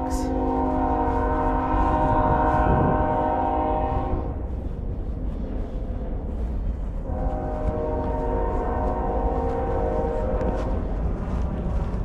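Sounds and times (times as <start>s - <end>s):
train horn: 0.0s - 4.4s, 7.0s - 10.8s
low rumble: 0.0s - 12.0s.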